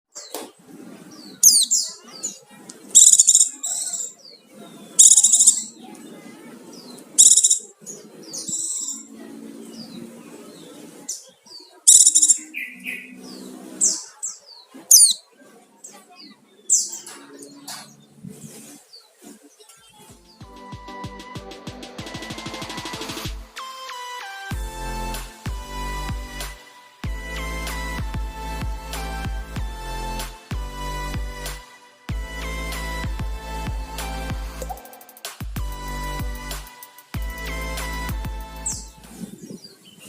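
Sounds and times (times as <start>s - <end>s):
bird chirping and trilling: 1.0s - 6.0s, 6.7s - 20.4s, 38.6s - 40.0s.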